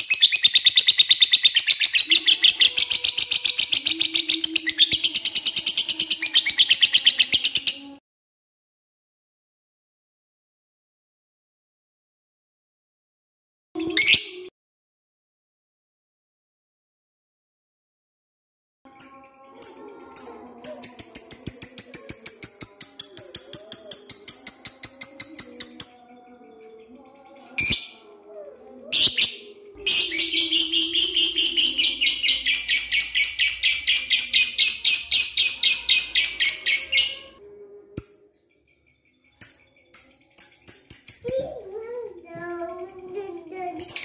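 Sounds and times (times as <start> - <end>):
lovebird chattering trill: 0.0 - 7.9, 29.0 - 37.4.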